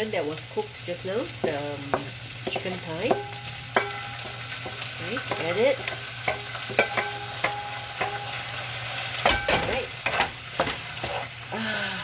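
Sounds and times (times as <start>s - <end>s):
food sizzling in a pan: 0.0s - 12.0s
utensil knocking and scraping pan: 1.4s - 8.4s, 9.2s - 11.3s.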